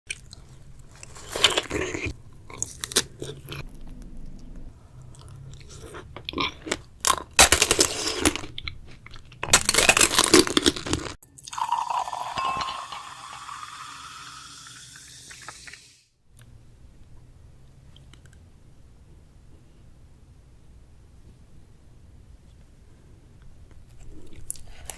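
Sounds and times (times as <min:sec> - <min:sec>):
biting and chewing strawberries: 0:00.1 - 0:11.2.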